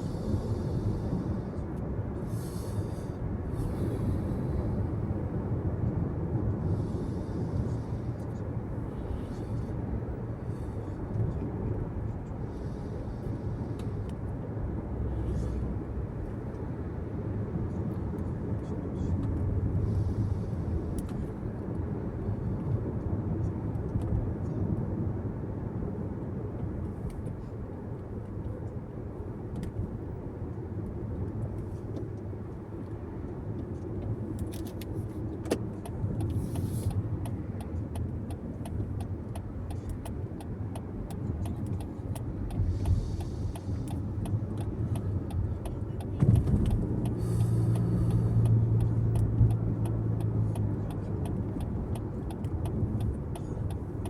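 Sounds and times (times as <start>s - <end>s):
car interior road rumble: 0.0s - 54.0s
light regular ticks: 33.6s - 54.0s.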